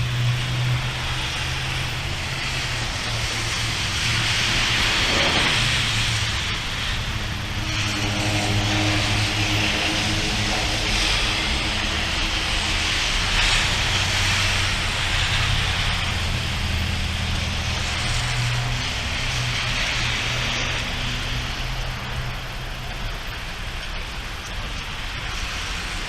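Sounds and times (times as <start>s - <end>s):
low droning hum: 0.0s - 23.3s
heavy rain hissing: 0.0s - 26.0s.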